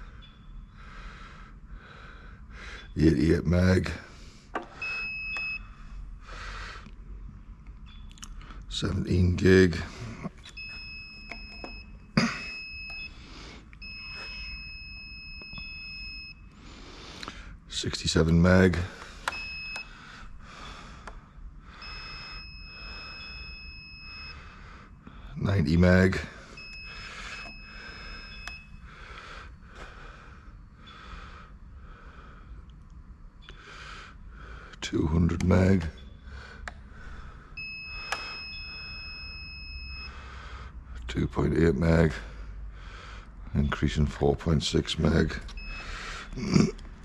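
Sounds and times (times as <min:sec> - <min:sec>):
high-pitched tester beep: 0:10.5 - 0:13.2, 0:13.8 - 0:16.6, 0:19.2 - 0:19.9, 0:21.8 - 0:24.5, 0:26.6 - 0:28.8, 0:37.6 - 0:40.2, 0:45.5 - 0:46.6
breathing close to microphone: 0:26.3 - 0:32.6.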